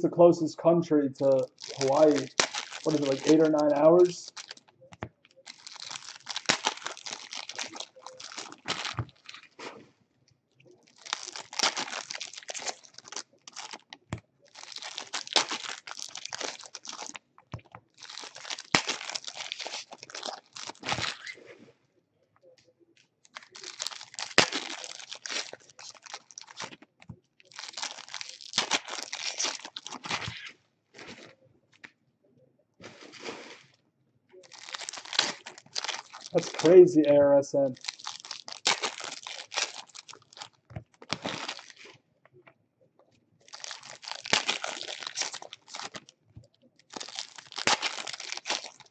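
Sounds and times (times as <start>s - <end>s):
wrappers tearing and crinkling: 1.2s - 4.8s, 5.4s - 9.7s, 10.7s - 21.5s, 23.2s - 31.4s, 34.4s - 37.0s, 37.6s - 42.0s, 43.4s - 46.2s, 46.8s - 48.9s.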